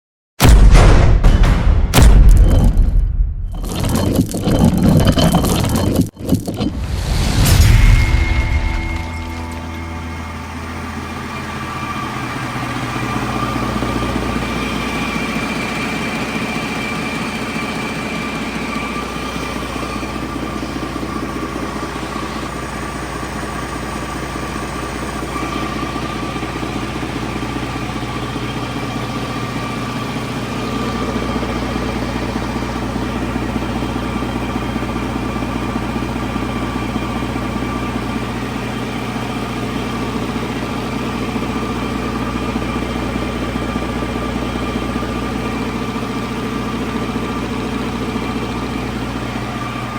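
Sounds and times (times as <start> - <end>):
diesel engine idling: 9.1 - 49.9.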